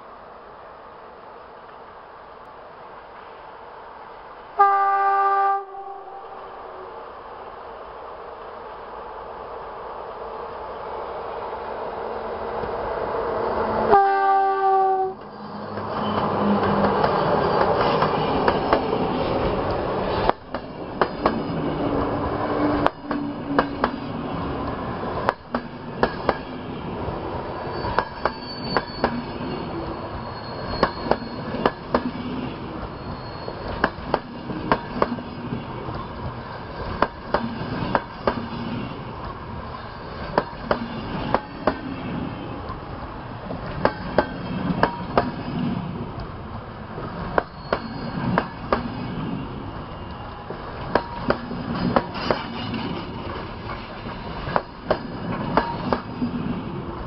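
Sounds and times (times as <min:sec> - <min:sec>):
train wheels rumbling on rails: 0:10.3 - 0:57.0
faint high wheel squeal: 0:15.1 - 0:18.6, 0:27.2 - 0:35.0, 0:47.2 - 0:50.4.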